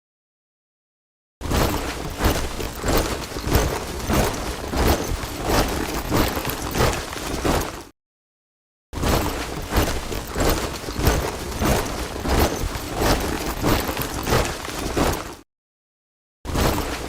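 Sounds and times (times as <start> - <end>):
soldiers' boots marching in step: 1.5 - 7.9, 9.1 - 15.4.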